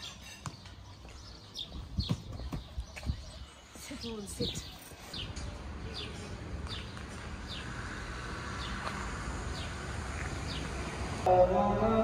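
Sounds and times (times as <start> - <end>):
person singing or chanting: 11.3 - 12.0.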